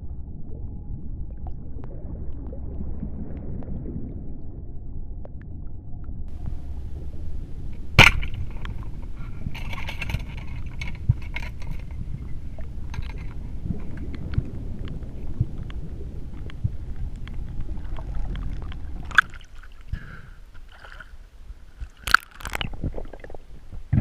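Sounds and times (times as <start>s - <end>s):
low underwater rumble: 0.0s - 24.0s
crackling clicks: 7.7s - 19.4s, 21.8s - 24.0s
sharp loud crack: 8.0s - 8.5s.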